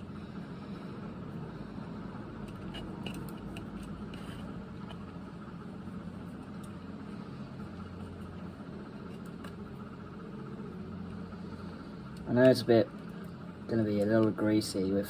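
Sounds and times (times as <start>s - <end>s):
steady low hum: 0.0s - 15.0s
handling clicks and rustles: 2.4s - 9.9s.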